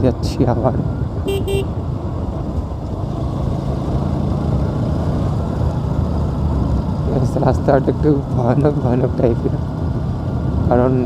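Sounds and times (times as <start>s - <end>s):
wind and road noise: 0.0s - 11.0s
motorcycle engine running: 0.9s - 11.0s.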